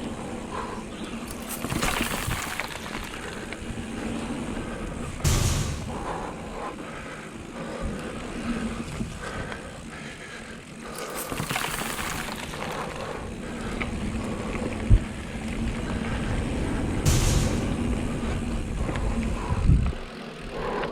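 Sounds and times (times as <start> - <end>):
bike rattling: 0.0 - 20.9
bike tyre noise on dirt: 0.0 - 20.9
sharp thump: 5.2 - 6.2, 17.1 - 18.0
wind on microphone: 13.2 - 20.1.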